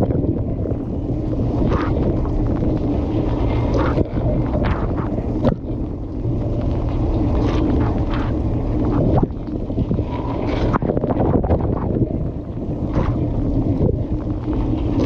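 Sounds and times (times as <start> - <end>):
dishwasher low rumble: 0.0 - 15.0.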